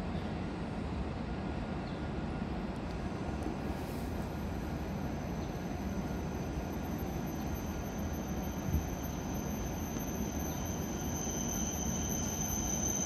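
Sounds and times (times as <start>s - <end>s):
faint high whine: 0.0s - 13.0s
train rumbling: 0.0s - 13.0s.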